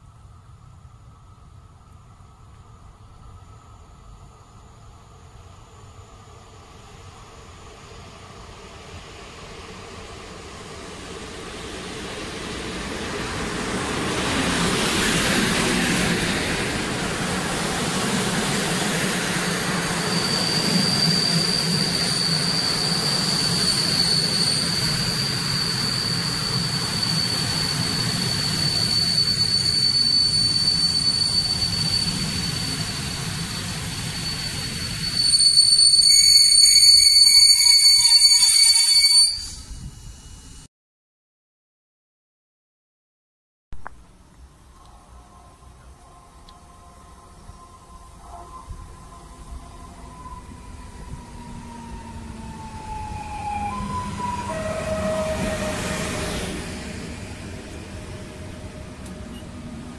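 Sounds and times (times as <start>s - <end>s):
train coaches rumbling past: 3.2s - 40.7s, 44.4s - 59.9s
high-pitched squeal: 14.2s - 40.7s, 44.8s - 59.8s.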